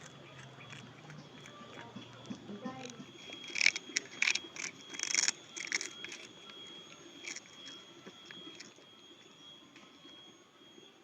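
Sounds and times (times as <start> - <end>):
cat crunching crackers: 0.0 - 9.0.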